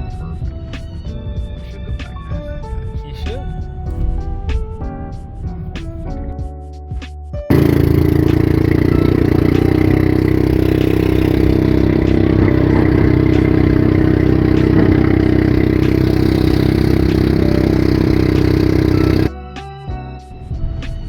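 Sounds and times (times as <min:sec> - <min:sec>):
vehicle engine running: 0:07.5 - 0:19.3.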